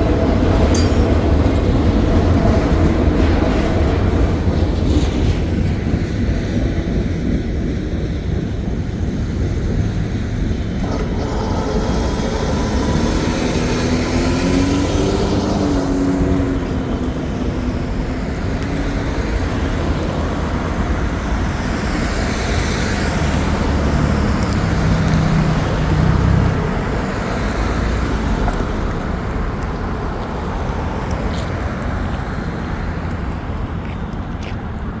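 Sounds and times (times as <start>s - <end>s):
passing vehicle engine: 7.9s - 34.9s
motor vehicles driving past: 9.6s - 34.9s.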